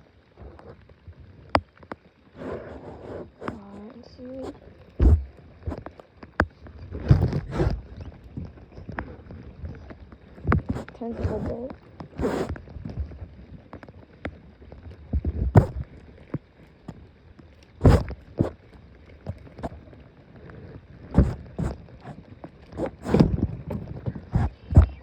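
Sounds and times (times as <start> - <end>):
low steady rumble: 3.6 - 5.6
knocks and thumps on boat: 4.4 - 8.1, 10.4 - 12.6, 15.2 - 15.9, 17.8 - 18.6, 21.1 - 25.0.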